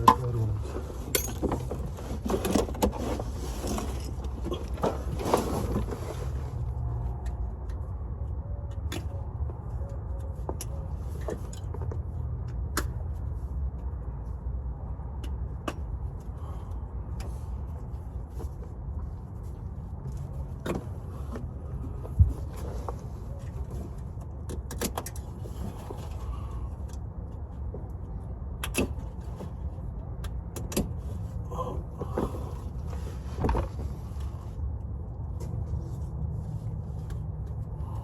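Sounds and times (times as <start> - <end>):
steady low rumble: 25.1 - 38.0.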